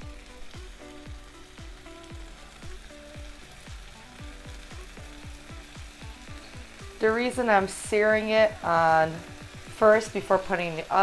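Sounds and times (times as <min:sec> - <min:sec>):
background music with a beat: 0:00.0 - 0:10.6
chicken sizzling in a pan: 0:00.0 - 0:11.0.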